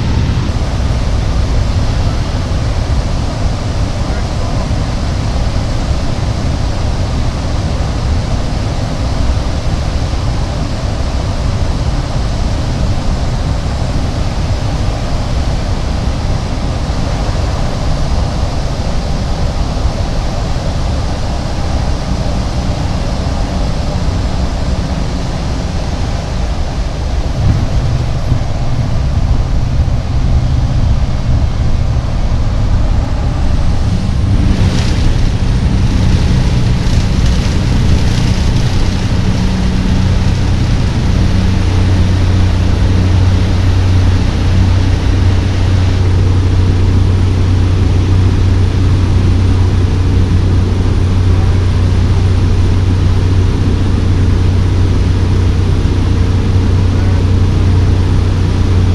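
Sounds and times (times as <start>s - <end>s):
airflow noise: 0.0s - 58.9s
propeller plane engine drone: 0.0s - 58.9s.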